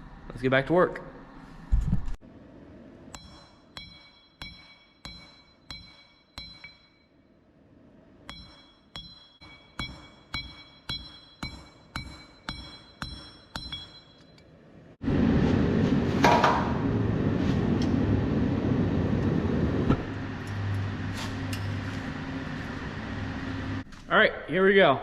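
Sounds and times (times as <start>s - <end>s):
hammer striking metal on anvil: 3.1s - 7.3s, 8.2s - 14.5s.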